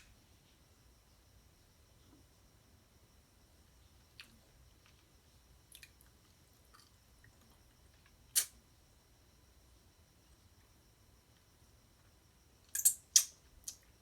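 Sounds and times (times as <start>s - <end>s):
wet mouth clicks and smacks: 12.8s - 13.8s.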